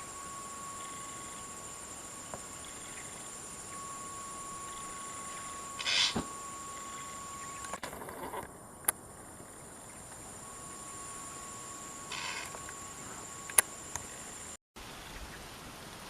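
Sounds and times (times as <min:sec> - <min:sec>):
insects droning: 0:00.0 - 0:16.0
sharp clicks: 0:13.5 - 0:14.1.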